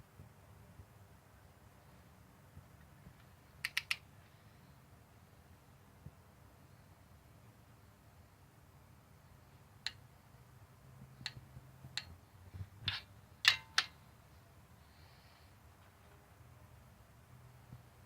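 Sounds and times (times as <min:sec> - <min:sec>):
hand tools clicking metallically: 0:12.9 - 0:14.0.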